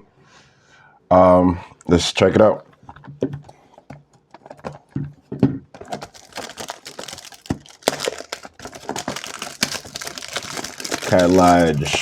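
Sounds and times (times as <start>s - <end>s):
handling clicks and knocks: 2.7s - 12.0s
wrapping crinkling and tearing: 5.8s - 12.0s.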